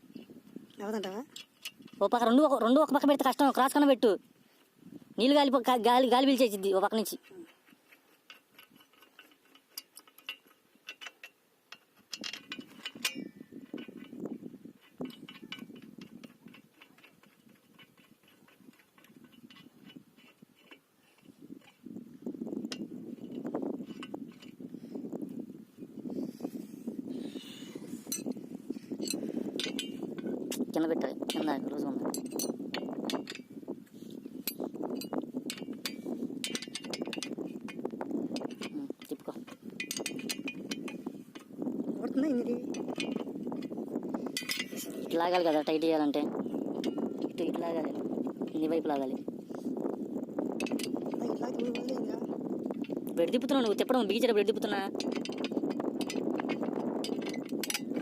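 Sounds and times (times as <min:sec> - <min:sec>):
pump fittings clicking and knocking: 0:00.1 - 0:03.5, 0:06.3 - 0:25.4, 0:27.2 - 0:58.0
metal tools clinking on bolts: 0:07.6 - 0:14.2, 0:14.8 - 0:21.8, 0:27.4 - 0:28.4, 0:29.0 - 0:41.5, 0:42.6 - 0:45.7, 0:46.7 - 0:48.6, 0:50.6 - 0:58.0.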